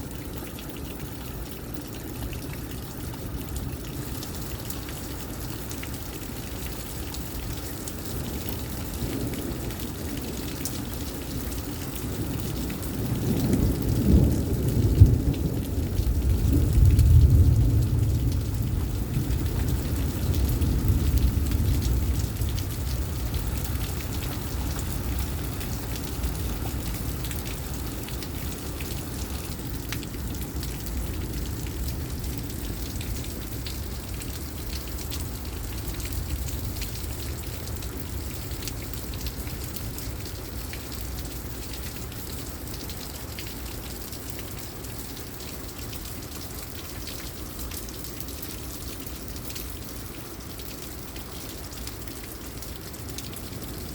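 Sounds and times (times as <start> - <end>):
heavy rain: 0.0 - 53.9
thunder rumble: 12.9 - 28.6.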